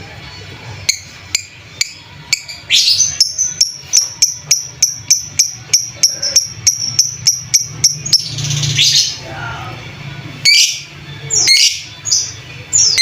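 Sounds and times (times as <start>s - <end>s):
lovebird chirping rapidly: 0.9s - 9.2s.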